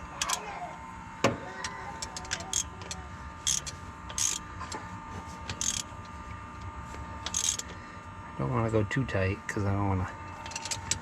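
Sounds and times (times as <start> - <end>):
ratchet rasps and clicks: 0.2 - 0.4, 2.0 - 4.4, 5.5 - 5.9, 7.2 - 7.7, 10.3 - 11.0.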